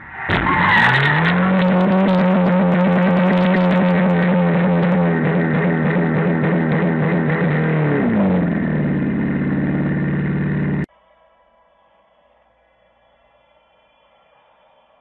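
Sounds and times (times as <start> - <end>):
car engine at high revs: 0.4 - 10.9.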